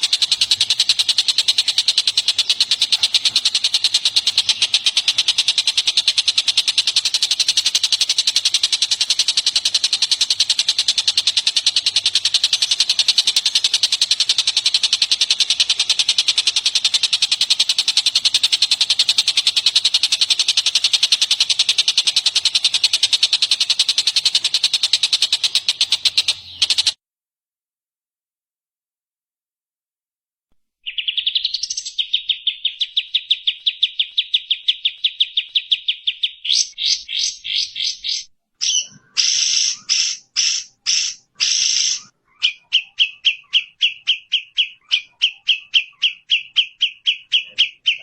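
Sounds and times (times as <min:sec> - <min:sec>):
songbird trilling: 0:00.0 - 0:27.0, 0:30.8 - 0:48.0.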